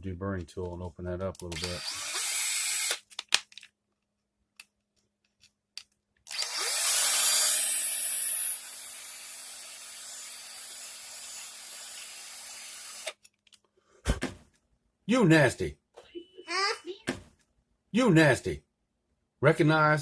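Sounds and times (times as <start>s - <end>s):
power tool motor whining: 6.3s - 13.1s.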